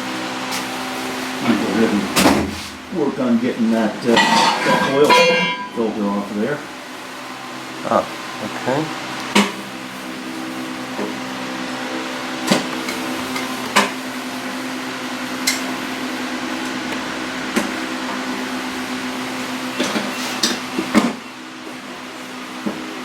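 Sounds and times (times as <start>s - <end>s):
mechanical hum: 0.0s - 23.0s.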